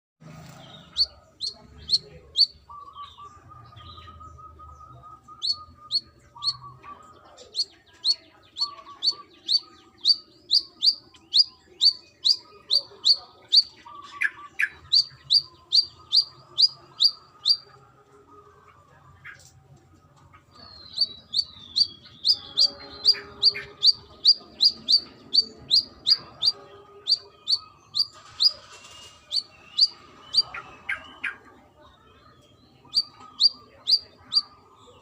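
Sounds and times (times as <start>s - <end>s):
bird calling sharp high notes: 21.0s - 31.0s.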